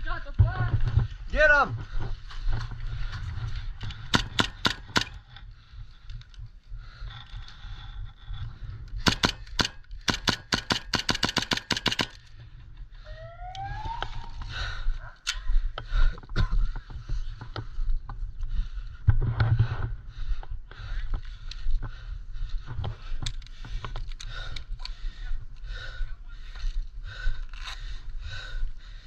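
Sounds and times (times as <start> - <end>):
airsoft guns firing: 4.1 - 5.2, 9.0 - 12.2.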